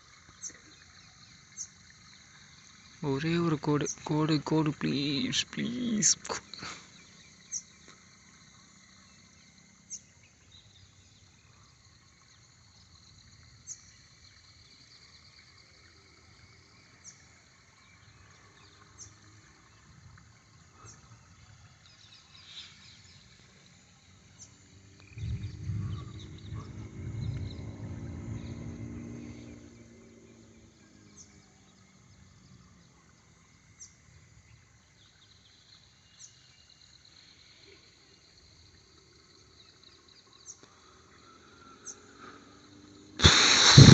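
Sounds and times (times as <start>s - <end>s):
insects chirping: 0.0s - 43.9s
distant thunder rumble: 25.1s - 29.4s.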